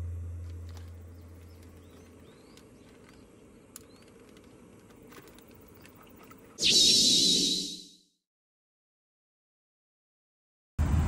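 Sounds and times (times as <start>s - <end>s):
low hum: 0.0s - 3.8s, 6.4s - 7.9s
small birds chirping faintly: 0.6s - 7.9s.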